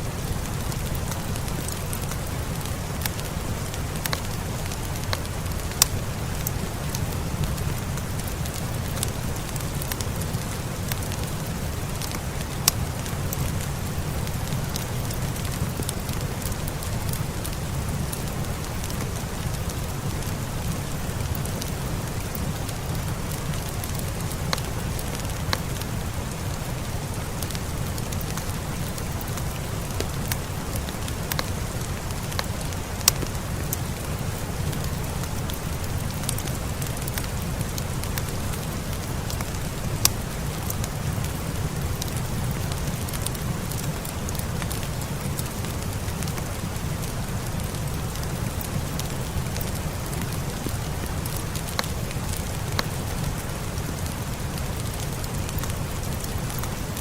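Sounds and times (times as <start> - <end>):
fireplace crackling: 0.0 - 57.0
steady rain: 0.0 - 57.0.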